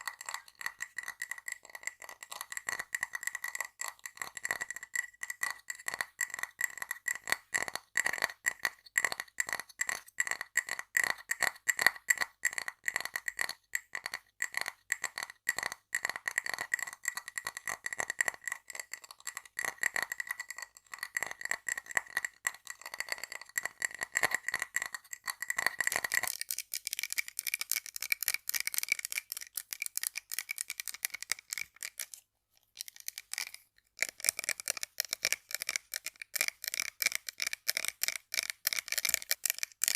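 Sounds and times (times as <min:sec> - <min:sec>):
rapid tapping on hard objects: 0:00.0 - 0:39.9.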